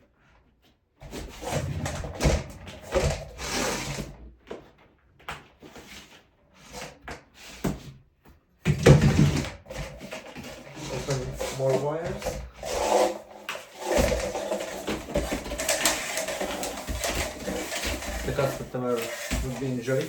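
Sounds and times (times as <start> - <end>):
cable rubbing and scraping on plastic: 1.0 - 4.8, 9.2 - 20.0.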